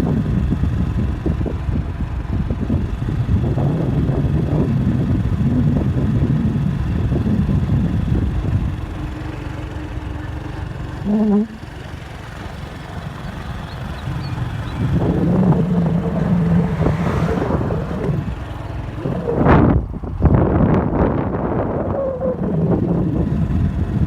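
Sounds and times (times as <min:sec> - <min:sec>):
longer pitched tone: 0:11.0 - 0:11.7
short pitched sound: 0:11.0 - 0:11.8
storm wind gusting: 0:13.9 - 0:23.5.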